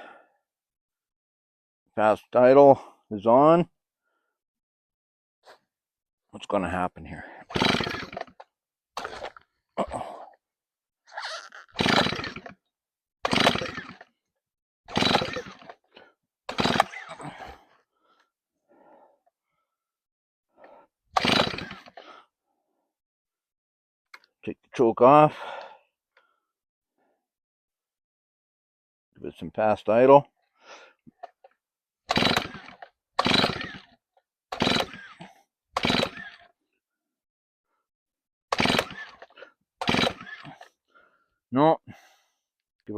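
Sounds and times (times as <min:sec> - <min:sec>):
chainsaw recoil starter pulls: 0:07.5 - 0:09.5, 0:11.4 - 0:14.2, 0:14.9 - 0:17.7, 0:21.2 - 0:22.2, 0:31.1 - 0:36.6, 0:38.5 - 0:40.8
chainsaw engine turning over: 0:07.5 - 0:10.0, 0:11.4 - 0:14.2, 0:14.9 - 0:17.6, 0:21.2 - 0:22.1, 0:32.1 - 0:36.6, 0:38.5 - 0:40.7.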